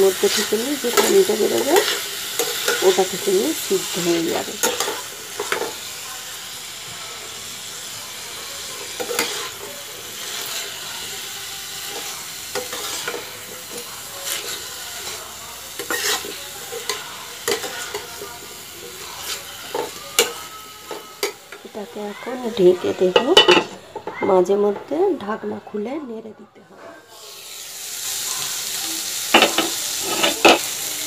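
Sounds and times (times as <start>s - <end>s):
spatula scraping a pan: 0.0s - 5.9s, 8.6s - 24.9s, 29.3s - 30.8s
cauliflower sizzling in oil: 0.0s - 25.3s, 27.1s - 31.0s.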